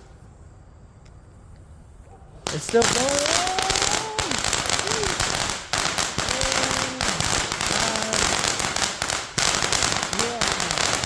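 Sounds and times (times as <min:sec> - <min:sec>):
firework fountain crackling: 0:02.4 - 0:11.0.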